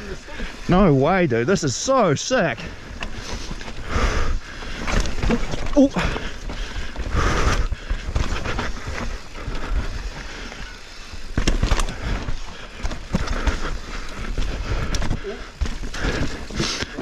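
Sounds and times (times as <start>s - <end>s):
bike tyres on dirt: 0.0s - 17.0s
bike knocks and rattles: 4.4s - 17.0s.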